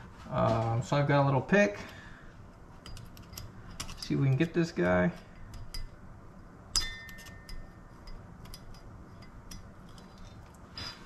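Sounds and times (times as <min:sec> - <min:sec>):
metal pick scraping metal: 0:02.5 - 0:06.1, 0:06.7 - 0:10.2
sharp ringing clink: 0:06.7 - 0:09.8.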